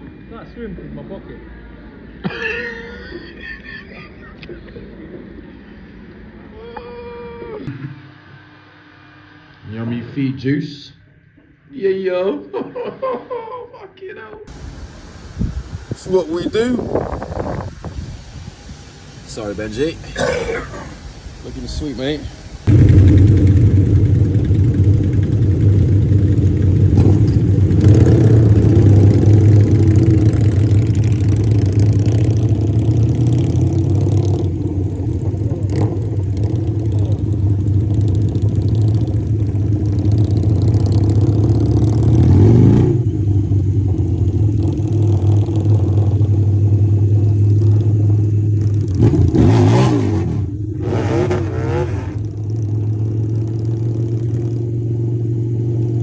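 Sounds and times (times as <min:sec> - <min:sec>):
motorcycle engine running: 0:22.7 - 0:56.0.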